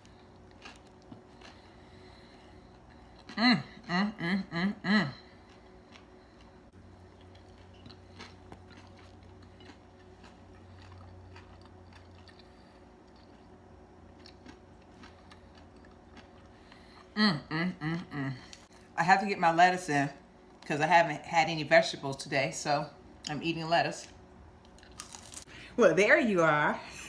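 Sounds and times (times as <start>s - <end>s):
chewing crispy food: 0.0s - 19.0s, 24.0s - 25.6s.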